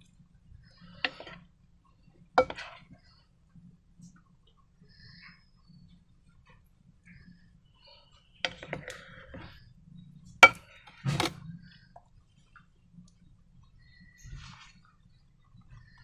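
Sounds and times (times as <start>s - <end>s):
hard objects clicking and knocking: 2.4s - 2.9s, 10.3s - 11.5s
rustling: 14.1s - 15.1s.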